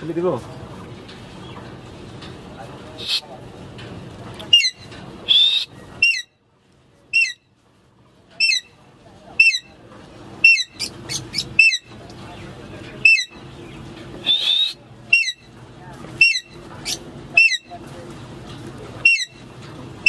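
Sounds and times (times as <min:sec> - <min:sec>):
parakeet calling: 0:04.5 - 0:06.3, 0:07.1 - 0:07.4, 0:08.4 - 0:08.8, 0:09.4 - 0:09.8, 0:10.4 - 0:12.0, 0:13.0 - 0:13.4, 0:14.2 - 0:15.5, 0:16.2 - 0:17.8, 0:19.0 - 0:19.4.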